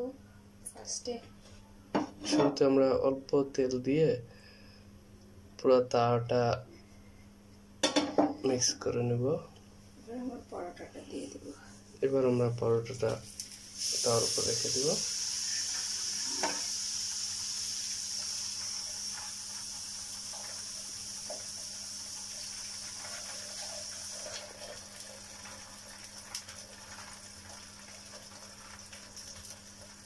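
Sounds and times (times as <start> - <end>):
flatbread sizzling in oil: 12.9 - 30.0.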